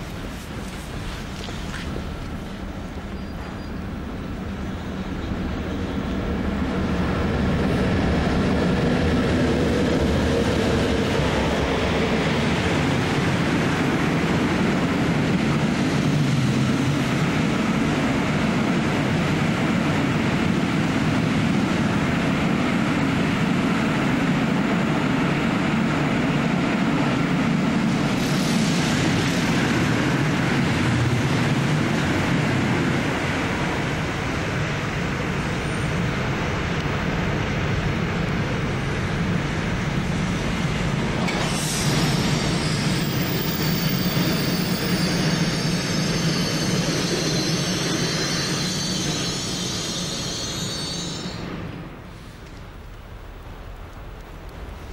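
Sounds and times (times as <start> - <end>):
rumble of train wheels on rail: 0.0 - 54.9
hiss: 27.9 - 30.6, 41.1 - 52.6.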